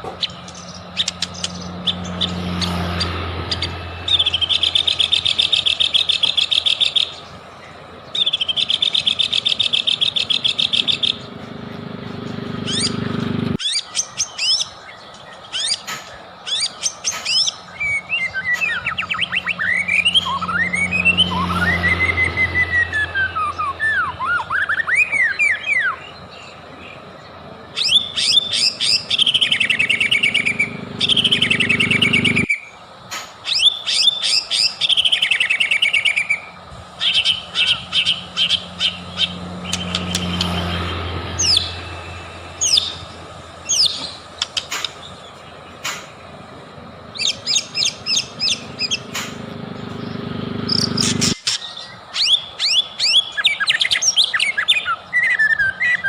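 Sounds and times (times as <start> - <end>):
bird singing trills and whistles: 0.2 - 11.3, 12.4 - 32.8, 33.4 - 46.3, 47.1 - 56.0
low hum: 37.9 - 51.4.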